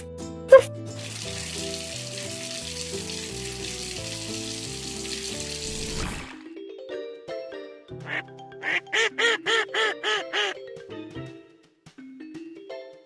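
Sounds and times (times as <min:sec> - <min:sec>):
light background music: 0:00.0 - 0:13.0
water running from tap: 0:00.9 - 0:06.4.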